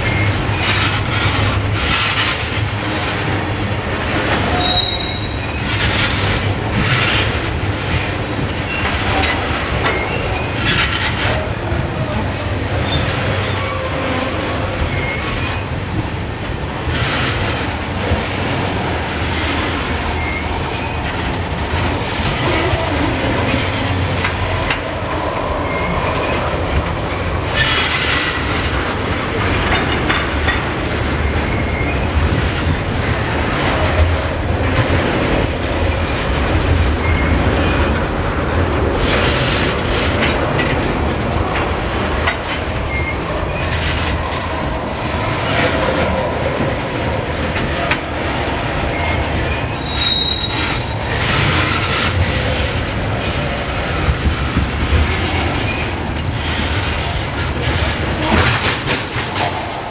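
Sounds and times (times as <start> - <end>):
freight train rumbling past: 0.0 - 59.9
faint high wheel squeal: 4.5 - 5.7, 48.9 - 50.9.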